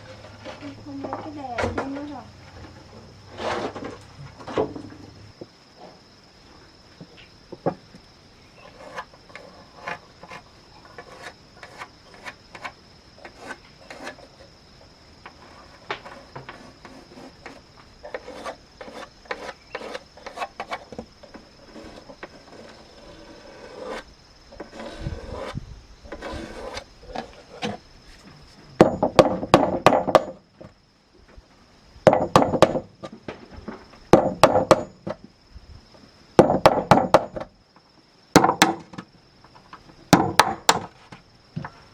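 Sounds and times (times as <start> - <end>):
wooden knocks: 28.8 - 30.4, 32.1 - 35.2, 36.4 - 37.5, 40.1 - 40.9.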